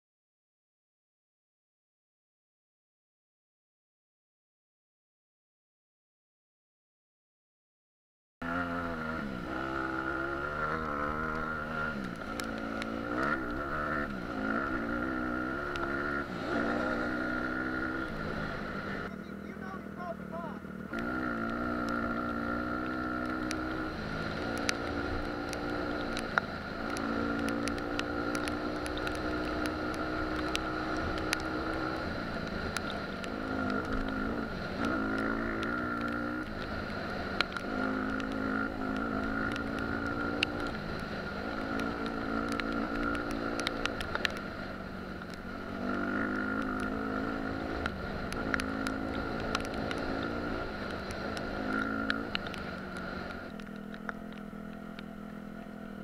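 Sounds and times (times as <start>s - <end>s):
dirt bike engine revving: 8.4s - 56.0s.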